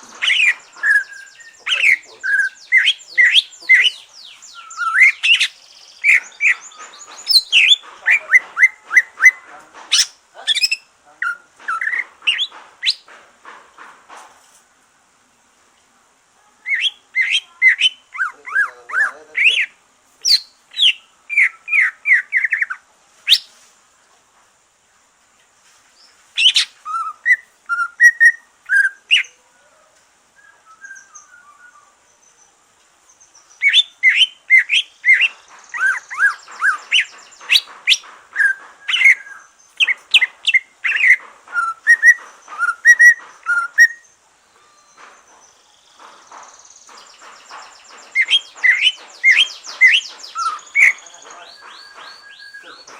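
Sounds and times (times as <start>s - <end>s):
bird chirping and whistling: 0.2s - 9.4s, 10.0s - 13.0s, 19.5s - 22.6s, 26.4s - 29.3s, 33.6s - 44.0s, 47.0s - 52.9s.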